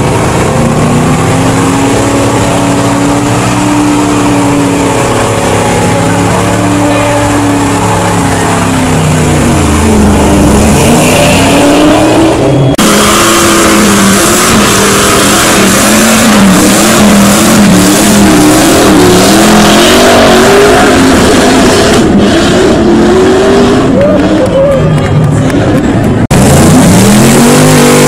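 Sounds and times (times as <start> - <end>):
car engine revving hard: 0.0 - 24.8, 25.4 - 28.0.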